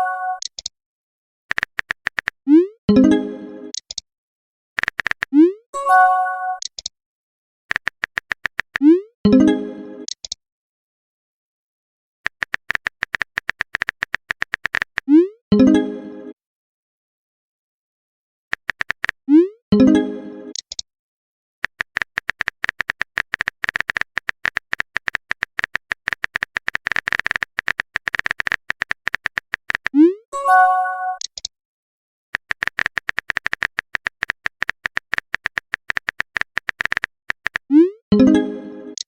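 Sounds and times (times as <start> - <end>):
phone keyboard typing clicks: 1.5 - 2.4, 4.8 - 5.4, 6.6 - 6.9, 7.7 - 8.9, 12.3 - 15.1, 18.5 - 19.2, 20.5 - 20.8, 21.6 - 30.0, 31.1 - 31.5, 32.4 - 37.7.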